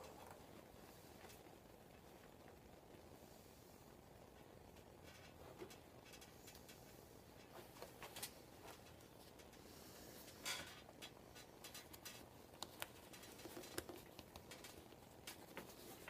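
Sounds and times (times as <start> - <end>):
vinyl rustling: 4.2 - 16.0.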